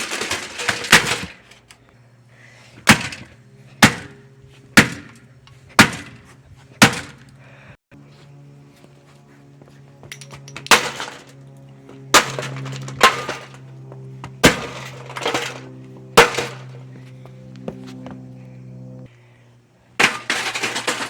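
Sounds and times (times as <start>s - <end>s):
plastic fan being smashed: 0.0s - 1.4s, 2.8s - 4.1s, 5.8s - 6.2s, 6.8s - 7.2s, 10.4s - 11.3s, 12.1s - 13.6s, 14.4s - 16.7s, 20.0s - 21.0s.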